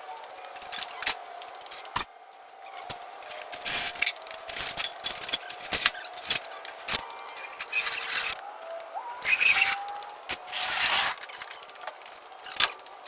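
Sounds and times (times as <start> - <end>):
tools and junk clattering: 0.2 - 8.4.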